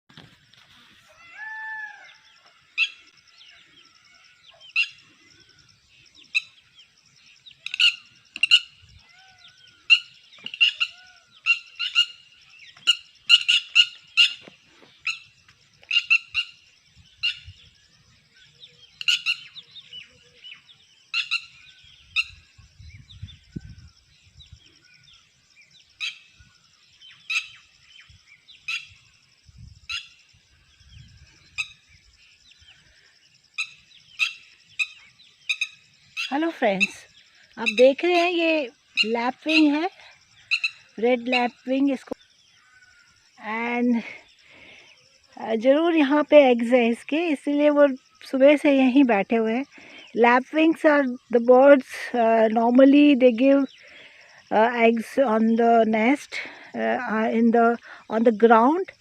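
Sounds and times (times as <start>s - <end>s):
lapwing alarm calls: 1.1s - 17.8s, 18.4s - 23.8s, 25.9s - 27.7s, 28.5s - 29.1s, 33.6s - 43.2s.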